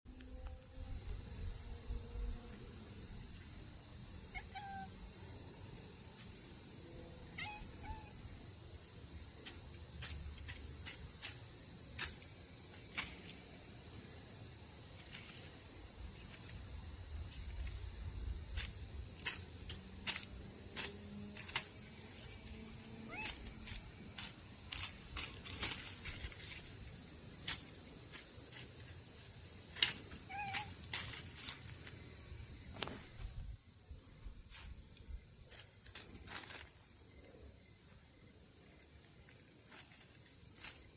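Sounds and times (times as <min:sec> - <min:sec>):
crickets chirping: 0:00.1 - 0:40.9
cat squeaking: 0:07.4 - 0:08.1, 0:30.3 - 0:30.7.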